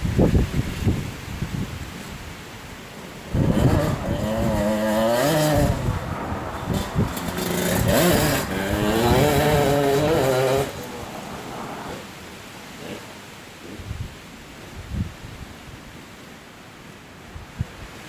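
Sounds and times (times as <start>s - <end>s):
two-stroke engine revving: 3.3s - 12.2s.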